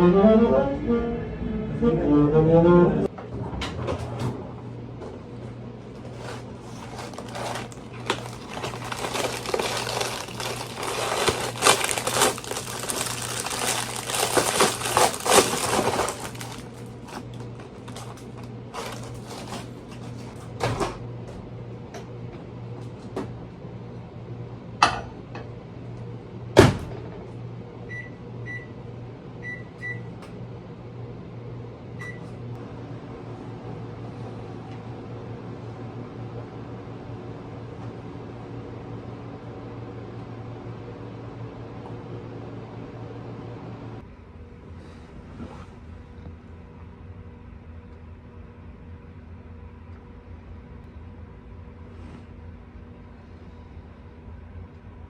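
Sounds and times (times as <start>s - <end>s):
steady low hum: 0.0s - 24.7s
objects rustling and clattering: 5.9s - 20.5s.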